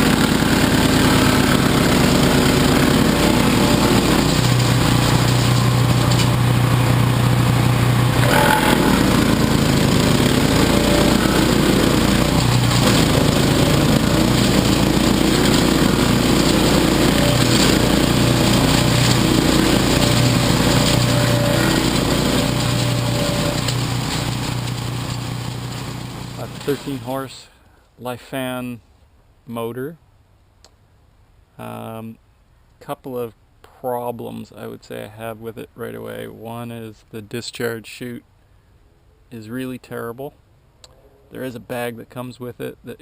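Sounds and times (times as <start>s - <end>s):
gasoline engine running steadily: 0.0s - 27.0s.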